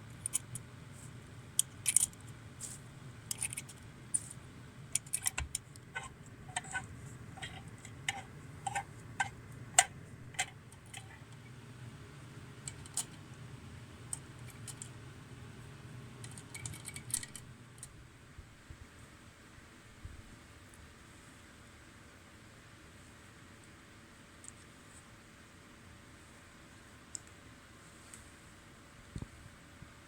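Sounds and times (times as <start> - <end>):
low steady hum: 0.0 - 30.0
metallic tool clicks and clinks: 1.6 - 2.2.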